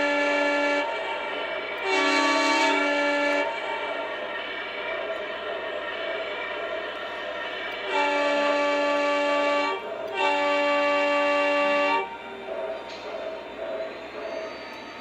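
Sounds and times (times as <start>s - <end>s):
model locomotive horn blasts: 0.0s - 1.0s, 1.8s - 3.6s, 7.8s - 12.1s.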